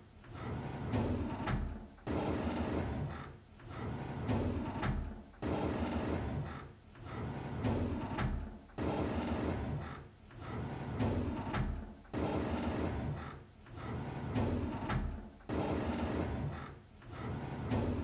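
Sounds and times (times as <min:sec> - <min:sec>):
drawer sliding open: 0:05.8 - 0:18.0.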